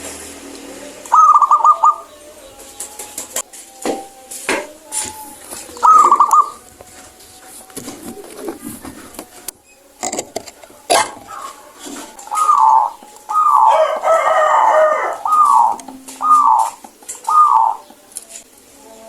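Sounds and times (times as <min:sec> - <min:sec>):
dove calling: 0:00.0 - 0:18.8.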